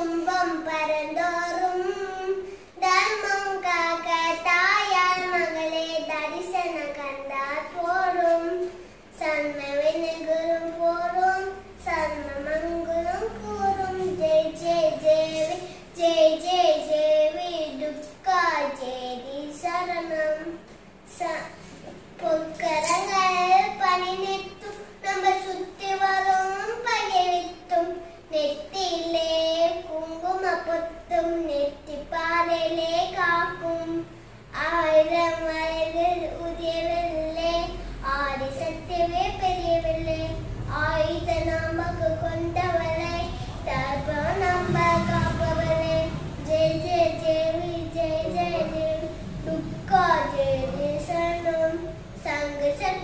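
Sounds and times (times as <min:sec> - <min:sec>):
girl singing unaccompanied: 0:00.0 - 0:53.0.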